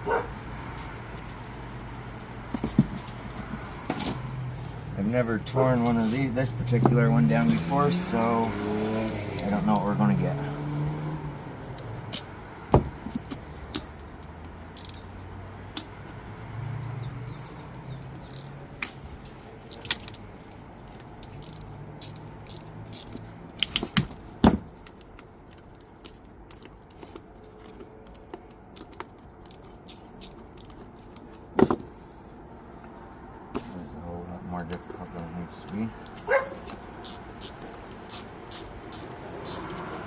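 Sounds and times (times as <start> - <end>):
metal parts clinking: 11.6 - 12.4, 13.1 - 16.1, 17.4 - 31.5, 36.0 - 39.9.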